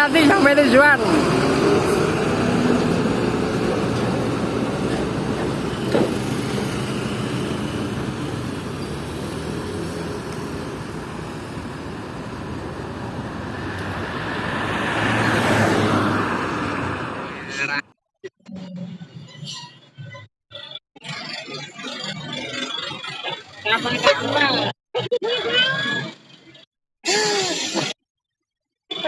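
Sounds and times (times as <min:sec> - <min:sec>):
truck diesel engine running: 0:00.0 - 0:14.0
road noise: 0:00.0 - 0:17.9.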